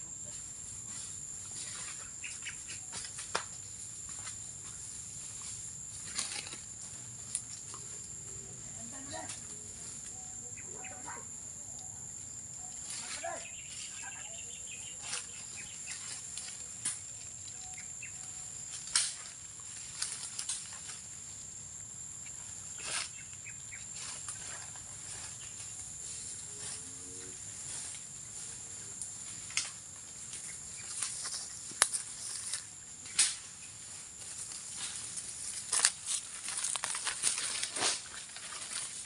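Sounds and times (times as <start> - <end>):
dry leaves and twigs snapping: 1.7 - 4.8, 6.0 - 8.1, 14.8 - 21.1, 29.0 - 39.0.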